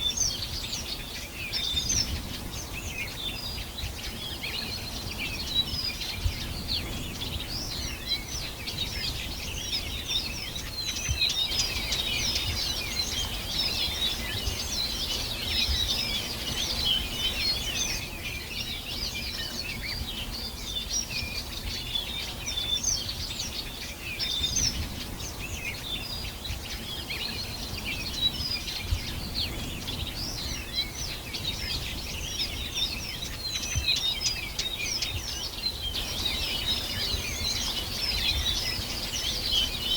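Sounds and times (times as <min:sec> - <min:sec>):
many small birds chirping: 0:00.0 - 0:39.9.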